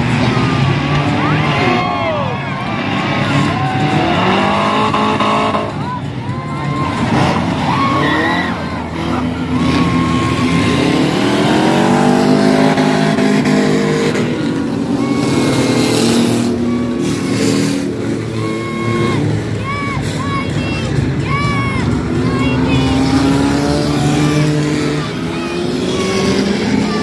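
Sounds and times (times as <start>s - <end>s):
car engines revving: 0.0s - 27.0s.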